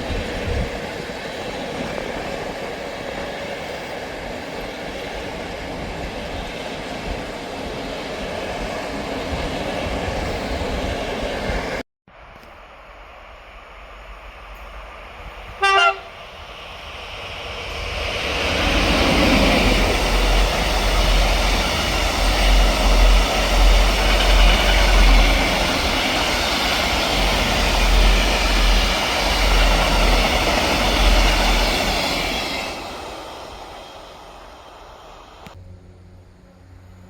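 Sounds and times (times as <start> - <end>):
train passing: 0.0 - 37.0
train horn toot: 15.6 - 16.2.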